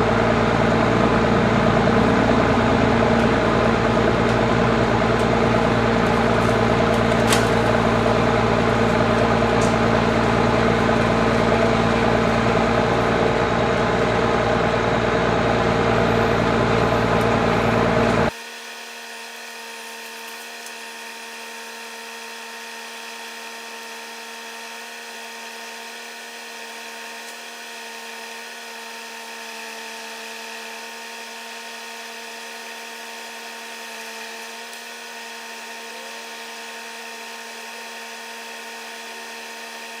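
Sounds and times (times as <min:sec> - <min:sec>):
quiet engine drone with hum: 0:00.0 - 0:18.3
engine running at high speed: 0:00.0 - 0:40.0.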